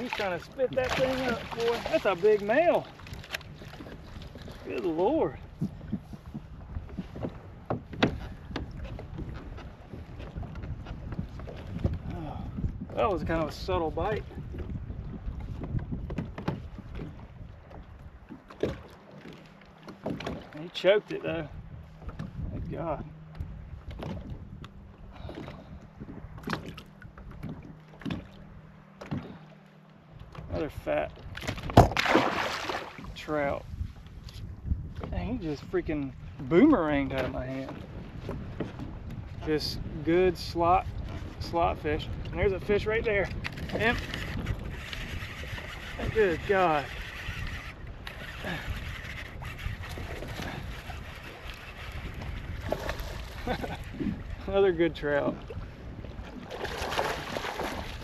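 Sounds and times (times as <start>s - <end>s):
water splashing: 0.0s - 5.4s, 31.0s - 33.5s, 43.8s - 58.0s
wind rumbling on microphone: 0.0s - 58.0s.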